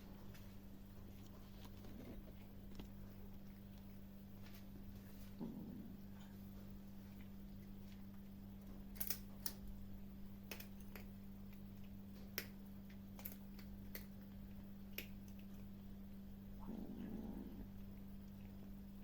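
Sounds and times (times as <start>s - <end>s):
steady low hum: 0.0s - 19.0s
kittens crunching hard food: 0.2s - 15.8s.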